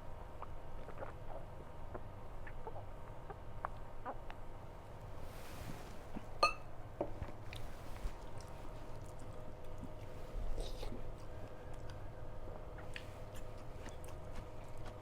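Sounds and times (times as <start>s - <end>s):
mouth clicks and chewing: 0.4s - 4.4s, 7.2s - 15.0s.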